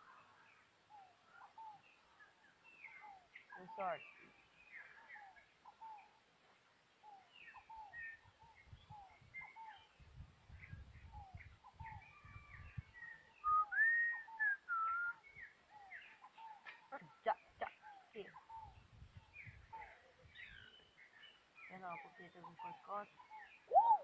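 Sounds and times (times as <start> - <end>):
birds chirping: 0.0 - 24.0
loud whistled bird notes: 13.4 - 15.4.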